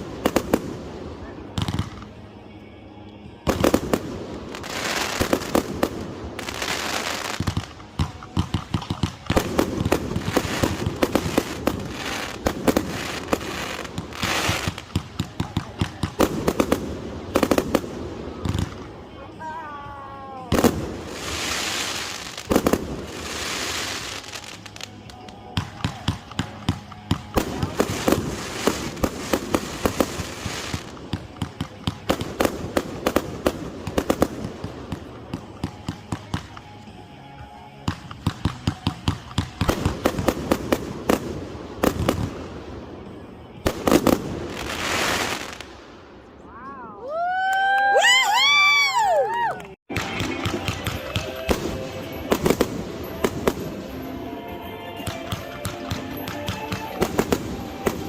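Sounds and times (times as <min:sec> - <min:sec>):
firework crackle: 0:00.0 - 0:02.2, 0:03.4 - 0:19.6, 0:20.2 - 0:36.8, 0:37.9 - 0:46.3, 0:49.9 - 0:58.0.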